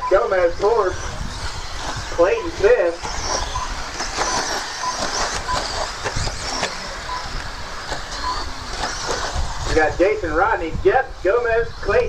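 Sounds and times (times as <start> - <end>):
rc truck motors whining: 0.0 - 12.0
short faint beeps: 3.5 - 5.8, 6.5 - 7.3.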